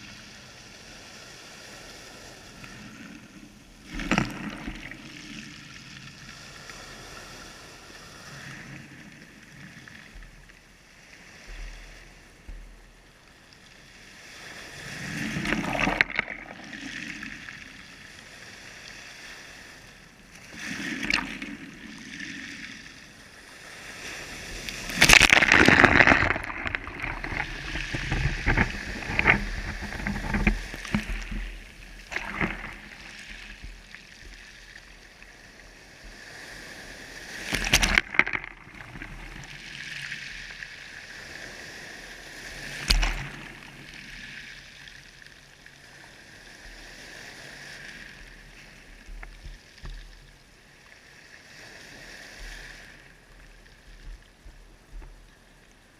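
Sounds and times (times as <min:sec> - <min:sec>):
water sloshing and splashing: 0:02.6 - 0:06.3, 0:14.7 - 0:18.2, 0:20.4 - 0:41.4, 0:42.0 - 0:50.6.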